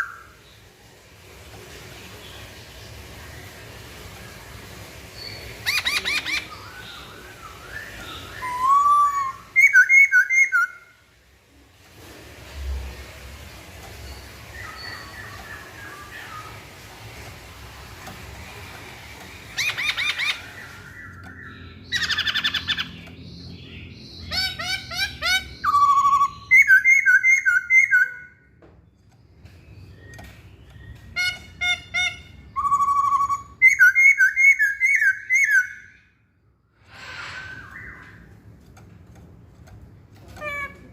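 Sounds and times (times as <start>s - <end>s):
bird singing whistled trills: 5.2s - 10.8s, 19.6s - 28.4s, 32.0s - 36.0s, 37.3s - 38.3s.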